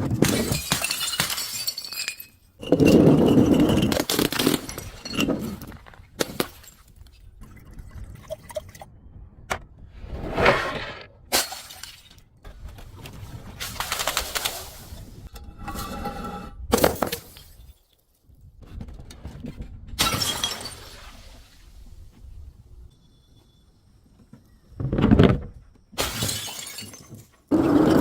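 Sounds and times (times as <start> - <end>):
glass crushing and shattering: 0.2 - 7.0, 20.0 - 21.0, 26.0 - 28.0.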